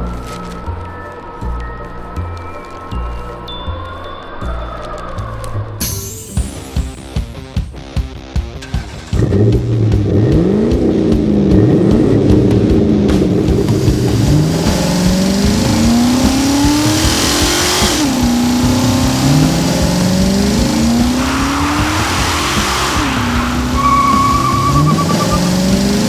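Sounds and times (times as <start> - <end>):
vehicle engine revving: 8.6 - 26.0
tyre noise hiss: 13.4 - 26.0.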